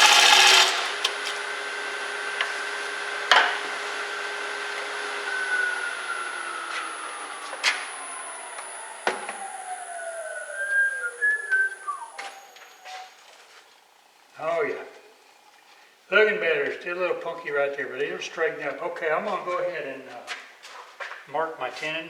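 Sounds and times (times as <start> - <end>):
wood lathe whining: 0.0 - 13.3.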